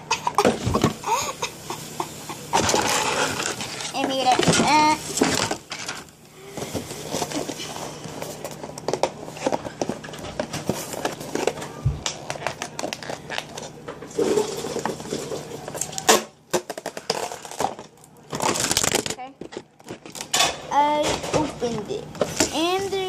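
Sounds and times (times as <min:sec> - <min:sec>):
packaging clicks taps and rustles: 0:08.2 - 0:13.7, 0:15.7 - 0:20.3.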